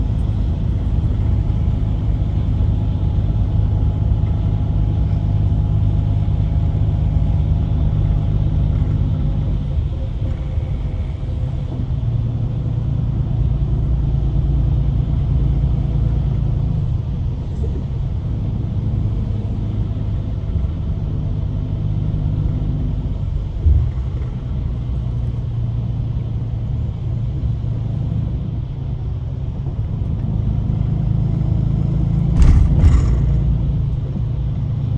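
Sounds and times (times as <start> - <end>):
bus engine and road rumble: 0.0 - 34.9
sharp knock: 32.4 - 33.8.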